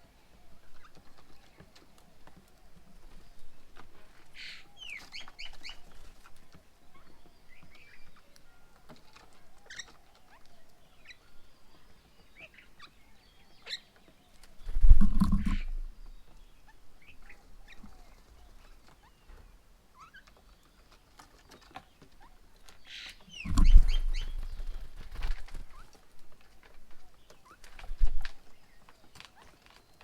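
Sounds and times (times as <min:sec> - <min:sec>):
birds chirping: 0:00.2 - 0:30.0
low thumps and clicks: 0:14.7 - 0:16.1, 0:23.4 - 0:25.4.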